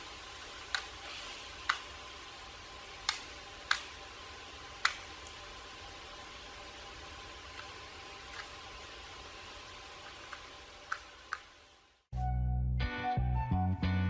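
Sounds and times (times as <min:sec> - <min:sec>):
faint steady hiss: 0:00.0 - 0:12.1.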